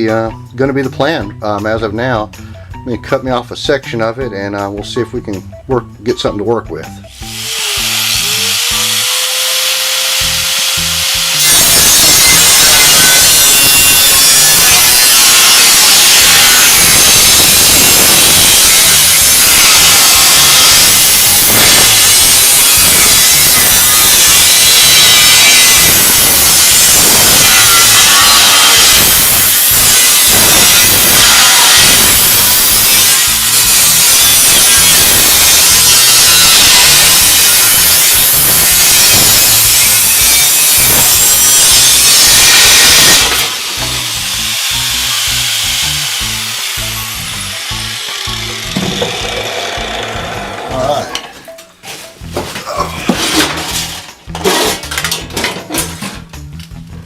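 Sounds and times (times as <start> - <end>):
power cutter cutting sheet steel: 7.1 - 51.0.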